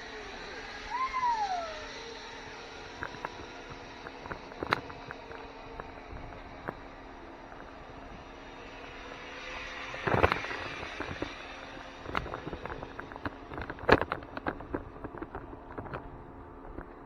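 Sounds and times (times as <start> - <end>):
sharp clicks and knocks: 2.8 - 6.9, 12.0 - 17.0.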